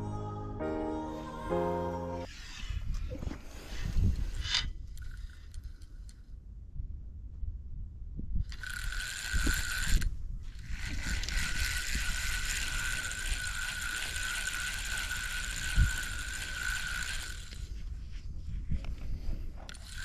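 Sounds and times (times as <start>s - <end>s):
fishing reel whirring: 4.2s - 6.2s, 8.5s - 17.8s, 19.7s - 20.0s.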